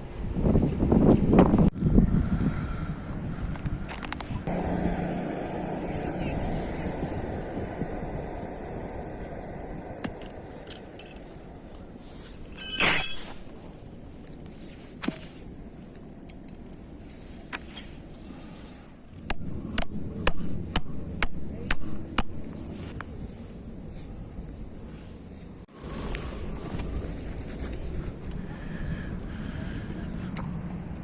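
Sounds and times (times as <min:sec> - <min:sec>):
metallic clink: 0:12.4 - 0:13.5.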